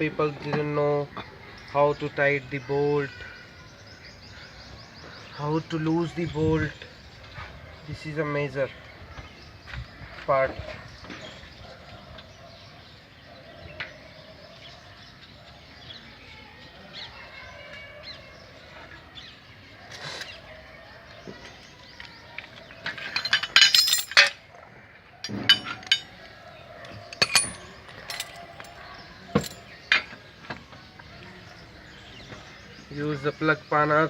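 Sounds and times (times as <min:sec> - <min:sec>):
spanner clinking on wheel bolts: 0:22.9 - 0:24.4, 0:25.3 - 0:26.1, 0:27.1 - 0:28.8, 0:29.4 - 0:30.0.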